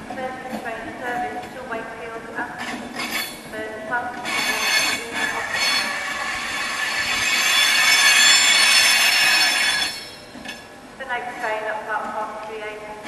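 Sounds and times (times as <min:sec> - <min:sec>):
train wheels squealing: 0:02.6 - 0:03.4, 0:04.2 - 0:10.6.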